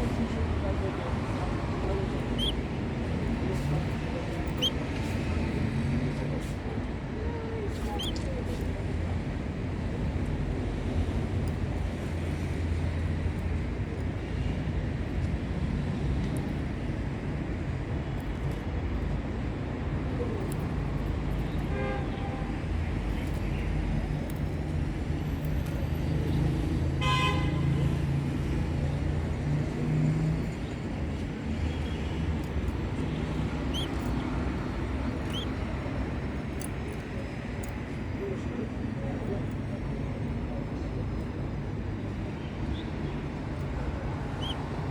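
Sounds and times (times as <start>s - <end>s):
road traffic rumble: 0.0s - 44.9s
vehicle horn tooting: 27.0s - 27.7s
faint high chirps: 33.7s - 34.0s.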